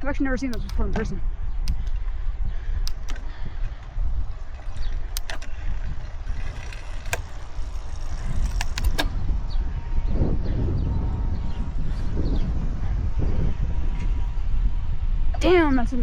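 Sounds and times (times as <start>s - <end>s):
bicycle road noise: 0.0s - 16.0s
wind rumbling on microphone: 0.0s - 16.0s
sharp clicks: 0.4s - 2.1s, 2.7s - 9.2s.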